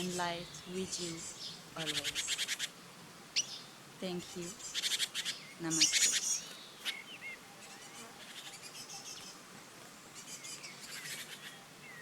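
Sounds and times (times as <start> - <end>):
background hiss: 0.0 - 12.0
small birds chirping: 0.0 - 12.0.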